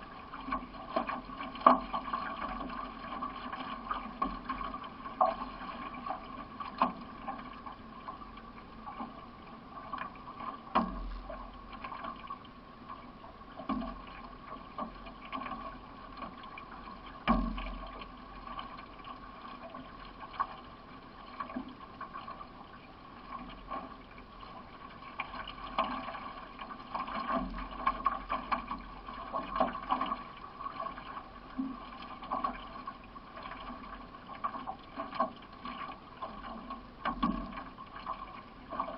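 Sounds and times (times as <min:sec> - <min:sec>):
paddle strokes in water: 0:00.0 - 0:38.9
sharp knocks from boat: 0:00.4 - 0:08.2, 0:10.0 - 0:12.3, 0:13.6 - 0:18.9, 0:36.2 - 0:38.9.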